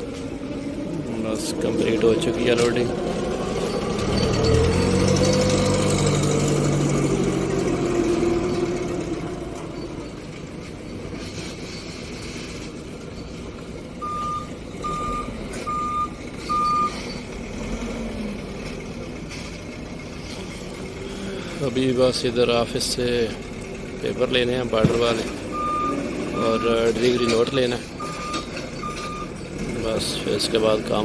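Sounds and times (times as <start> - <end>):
forklift engine revving: 0.0 - 31.0
reversing alarm beeping: 1.5 - 6.2, 14.0 - 17.4, 25.1 - 29.5.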